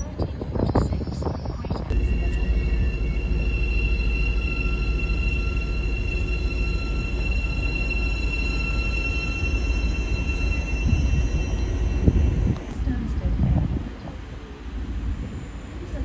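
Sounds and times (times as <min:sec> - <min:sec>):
train rumbling: 0:00.0 - 0:16.0
steady high whine: 0:01.9 - 0:13.3.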